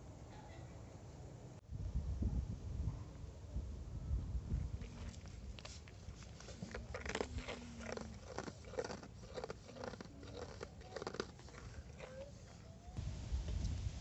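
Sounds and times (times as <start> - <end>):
short crunching strokes: 4.8 - 12.7.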